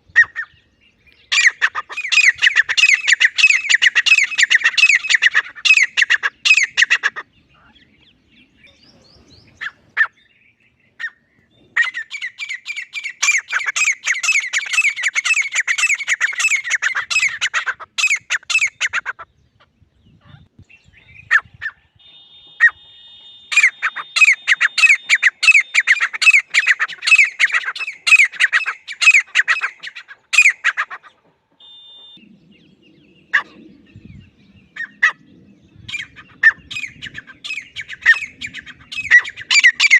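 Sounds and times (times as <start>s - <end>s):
francolin calling: 1.2s - 8.1s, 11.8s - 19.2s, 23.5s - 30.9s, 35.9s - 39.9s.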